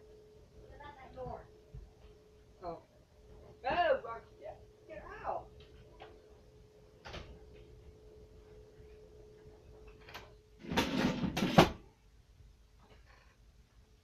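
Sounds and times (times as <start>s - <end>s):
door scraping and rustling: 10.1s - 11.8s.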